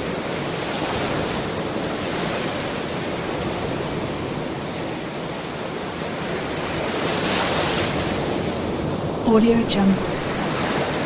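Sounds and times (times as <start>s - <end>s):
ocean surf washing ashore: 0.0s - 11.0s.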